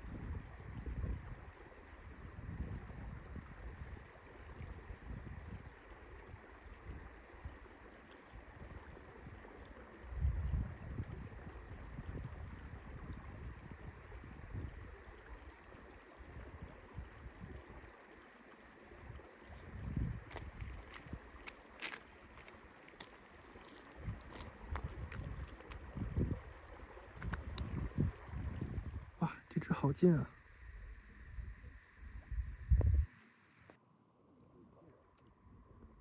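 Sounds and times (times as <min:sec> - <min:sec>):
wind buffeting microphone: 0:00.0 - 0:01.4, 0:02.2 - 0:05.7, 0:10.1 - 0:14.8, 0:19.6 - 0:21.5, 0:24.0 - 0:29.2, 0:31.4 - 0:33.1.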